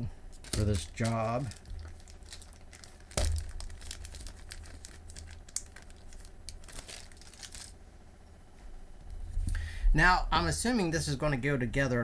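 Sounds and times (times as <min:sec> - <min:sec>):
packaging crinkling and rustling: 0:00.3 - 0:07.8.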